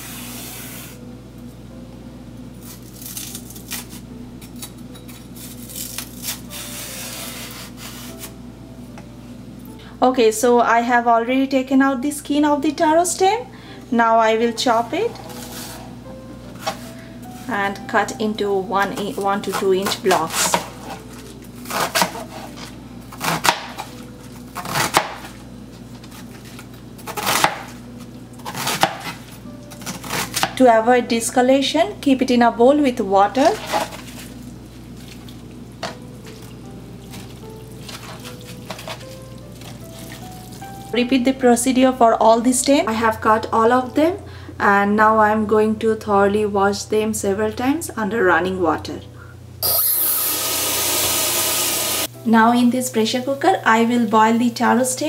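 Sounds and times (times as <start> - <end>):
knife scraping taro skin: 0.0 - 1.0, 2.6 - 4.0, 5.4 - 8.3, 19.4 - 24.0, 24.6 - 25.2
knife chopping on cutting board: 19.0 - 21.1, 21.7 - 24.0, 24.6 - 25.3, 27.0 - 27.8, 28.5 - 29.2.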